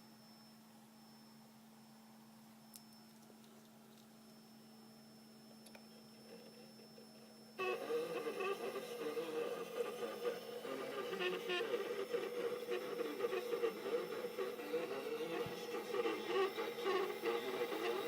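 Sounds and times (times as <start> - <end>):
steady hum: 0.0 - 18.0
radio broadcast from stepper motor: 7.6 - 18.0.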